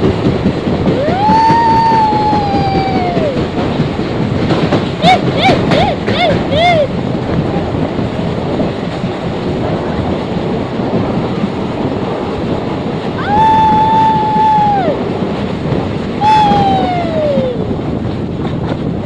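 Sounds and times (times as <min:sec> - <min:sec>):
train rumbling through tunnel: 0:00.0 - 0:19.0.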